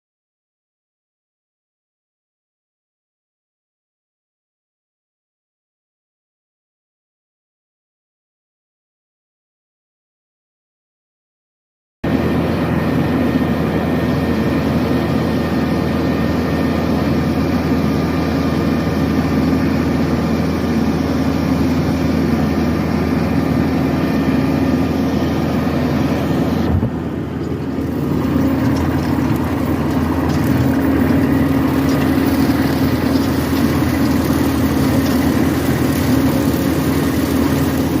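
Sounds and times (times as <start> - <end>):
tractor diesel engine running: 12.1 - 38.0.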